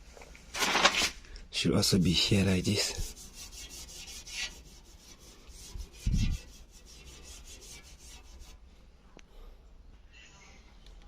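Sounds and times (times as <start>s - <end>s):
rubbing and scraping of parts: 0.0s - 1.2s, 2.2s - 8.6s.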